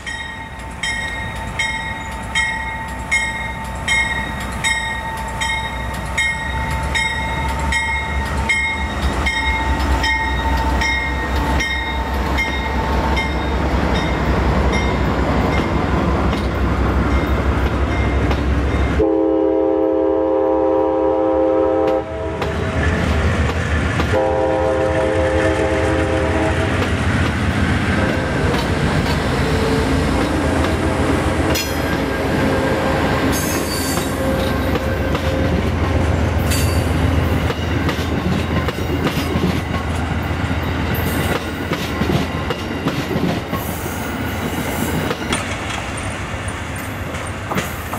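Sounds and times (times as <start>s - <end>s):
train wheels clicking over rail joints: 0.0s - 19.0s, 21.8s - 25.7s, 26.6s - 47.9s
locomotive air horn: 19.0s - 22.7s, 24.1s - 26.8s.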